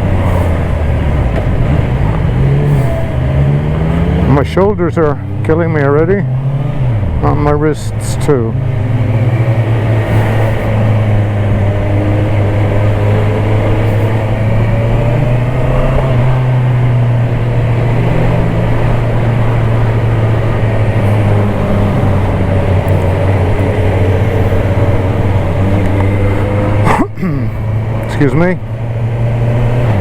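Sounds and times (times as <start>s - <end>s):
rushing noise: 0.0s - 4.4s, 8.7s - 28.4s
motorcycle engine running: 0.0s - 30.0s.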